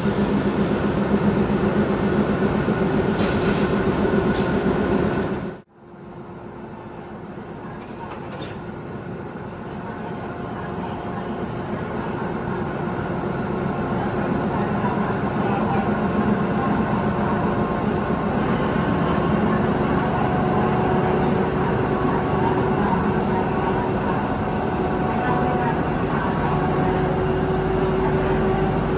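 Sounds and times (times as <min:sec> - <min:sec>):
train locomotive engine drone: 0:00.0 - 0:28.9.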